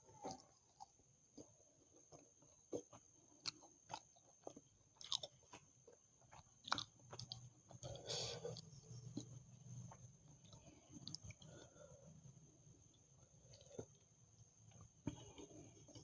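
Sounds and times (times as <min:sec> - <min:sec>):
chewing with wet mouth clicks: 0:02.1 - 0:11.7.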